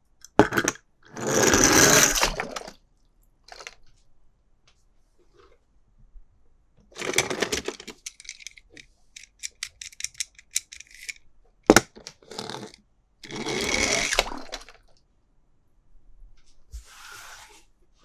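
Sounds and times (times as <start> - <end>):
quick clicks: 7.0 - 11.2.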